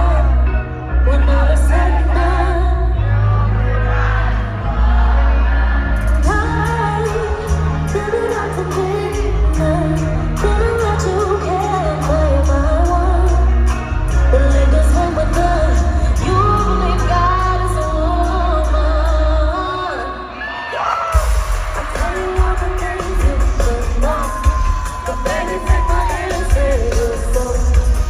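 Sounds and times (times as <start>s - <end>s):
heavy bass line: 0.0s - 19.8s
woman singing pop vocal runs: 6.0s - 28.0s.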